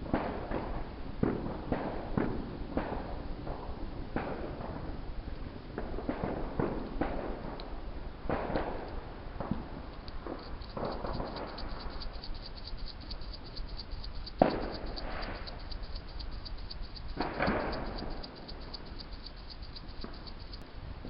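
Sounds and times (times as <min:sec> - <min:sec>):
faint fast regular ticking: 0:09.6 - 0:20.6.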